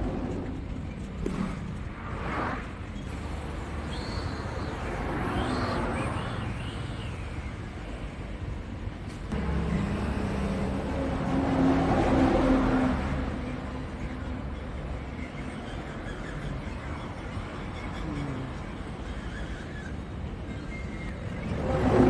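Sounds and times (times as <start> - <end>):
motor vehicle engine rumble: 0.0 - 22.0.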